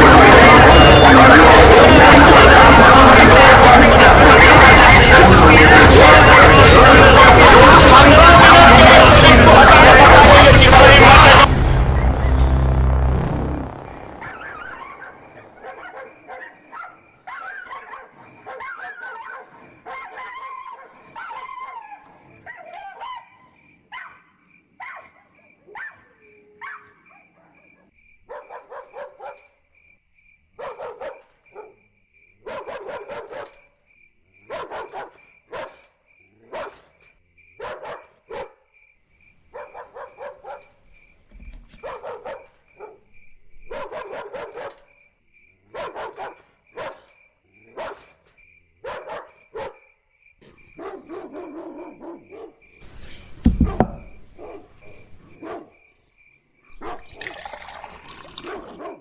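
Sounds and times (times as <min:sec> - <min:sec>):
steady high-pitched tone: 0:03.8 - 0:15.4
dog barking: 0:14.3 - 0:29.6, 0:30.6 - 0:33.7, 0:34.4 - 0:37.0, 0:37.6 - 0:38.7, 0:39.5 - 0:40.8, 0:41.8 - 0:45.0, 0:45.6 - 0:48.2, 0:48.8 - 0:50.0, 0:50.6 - 0:52.7, 0:53.6 - 0:55.8, 0:56.8 - 0:57.3, 0:58.3 - 0:59.0.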